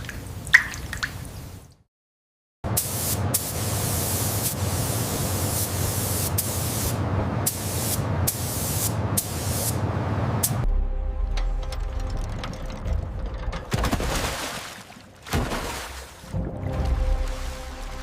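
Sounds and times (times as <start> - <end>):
loud steady hiss: 2.8 - 9.8.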